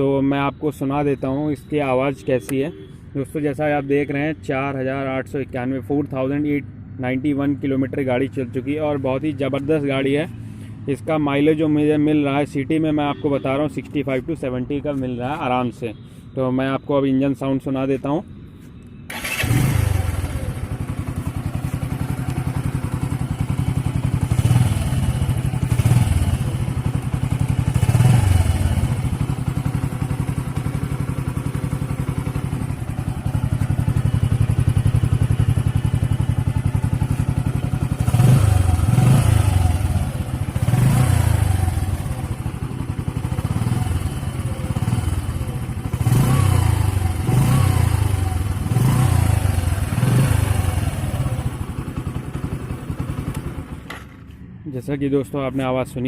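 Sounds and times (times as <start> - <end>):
motorcycle engine revving: 19.1 - 54.1
motorcycle engine starting and idling: 19.1 - 54.5.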